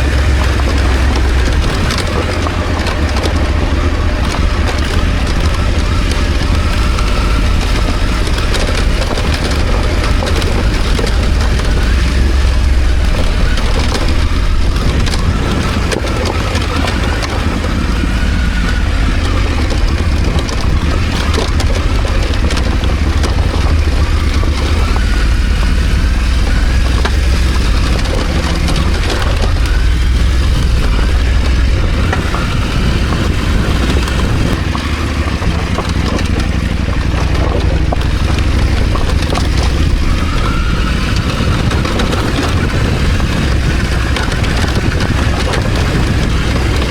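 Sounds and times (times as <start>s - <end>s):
motorcycle engine rumbling: 0.0s - 46.9s
wind and riding noise: 0.0s - 46.9s.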